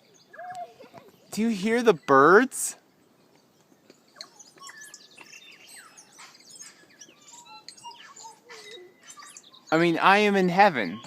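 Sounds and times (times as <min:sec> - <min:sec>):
bird whistles and chirps: 0:03.5 - 0:11.0.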